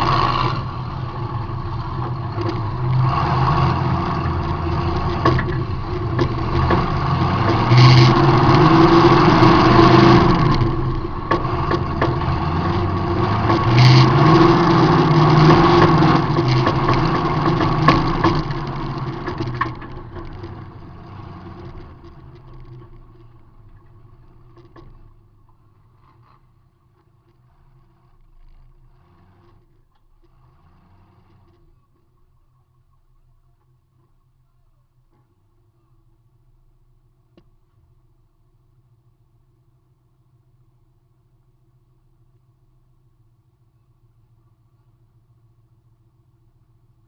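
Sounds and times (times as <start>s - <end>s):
car engine revving: 0.0s - 32.3s.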